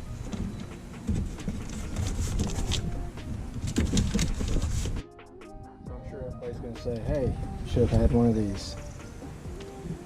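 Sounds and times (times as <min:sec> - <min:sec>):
rustling of boxes: 0:03.7 - 0:05.0.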